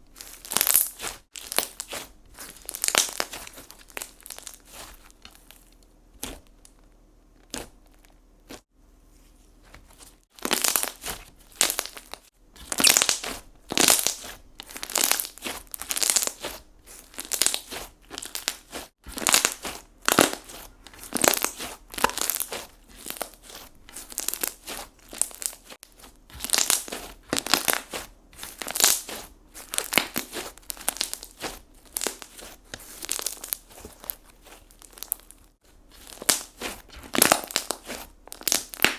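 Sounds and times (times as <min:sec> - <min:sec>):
slime crackly pops: 0:26.3 - 0:35.4, 0:36.0 - 0:38.9.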